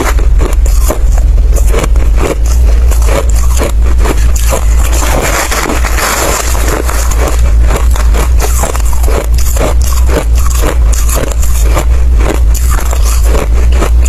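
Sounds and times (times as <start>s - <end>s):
ice being chewed: 0.0s - 14.0s
low rumble: 0.0s - 14.0s.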